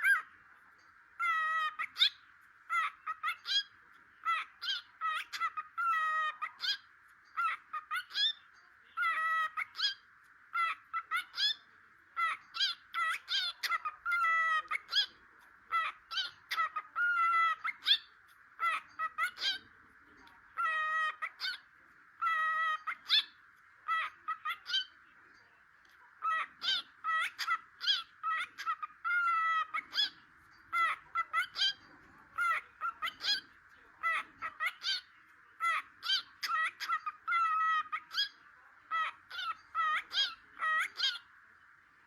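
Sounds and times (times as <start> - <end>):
cockatiel chirping: 0.0 - 0.3, 1.2 - 25.0, 25.9 - 41.3.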